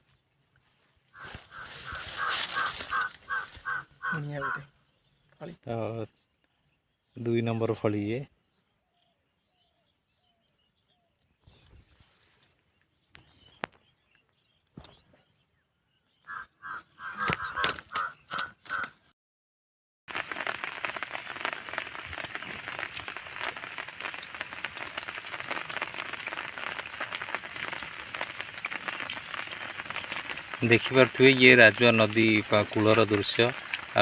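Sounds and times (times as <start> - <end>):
bird calling: 1.1 - 5.4, 16.0 - 19.1
light rain hissing: 1.2 - 3.6, 20.1 - 34.0.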